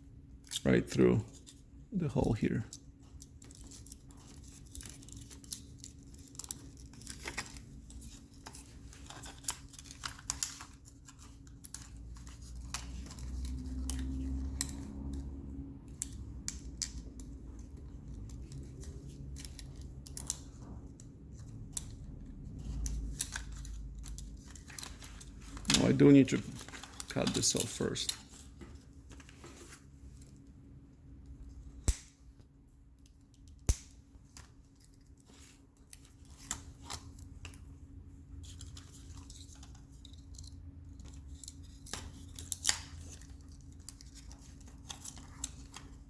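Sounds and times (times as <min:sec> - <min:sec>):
plastic rustling: 0:17.1 - 0:30.3.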